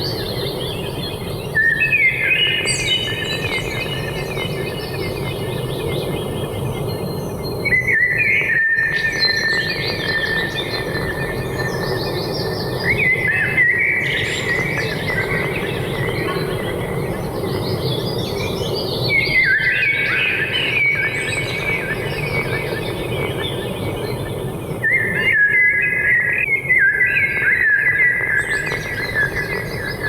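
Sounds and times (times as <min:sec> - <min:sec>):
birds singing: 0:00.0 - 0:30.0.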